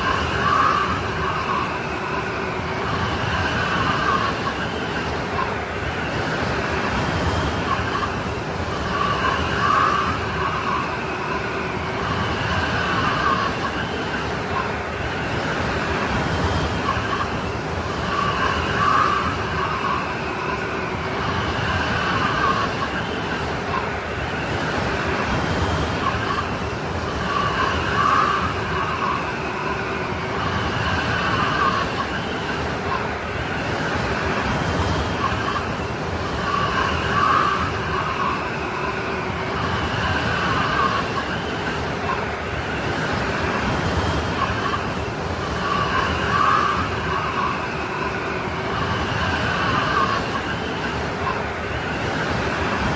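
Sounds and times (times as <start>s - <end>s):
strong snowstorm wind howling: 0.0s - 52.9s.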